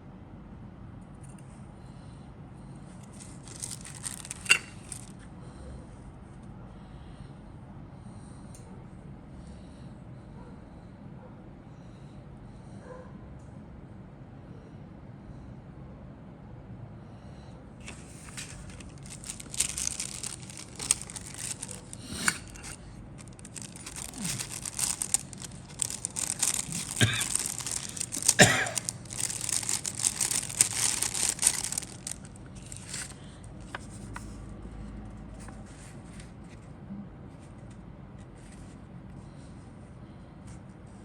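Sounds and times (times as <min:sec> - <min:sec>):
plastic bags crinkling: 0:03.1 - 0:05.1, 0:18.0 - 0:33.2.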